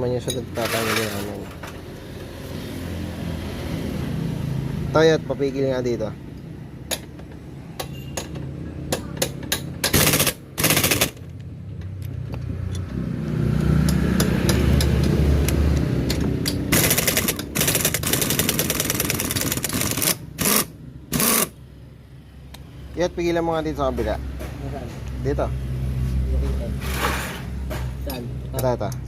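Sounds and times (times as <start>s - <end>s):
impact wrench rattling bursts: 9.2s - 11.3s, 16.0s - 21.6s.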